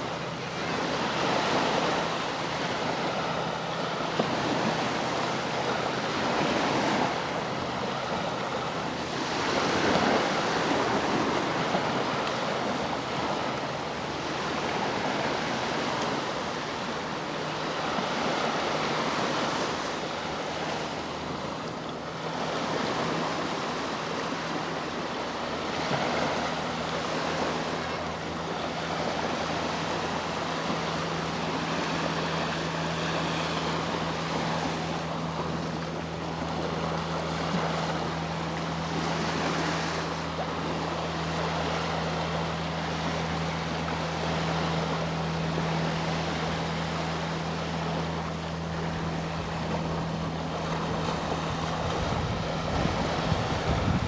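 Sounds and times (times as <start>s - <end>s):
boat engine drone: 0.0s - 54.0s
sea waves washing: 0.0s - 54.0s.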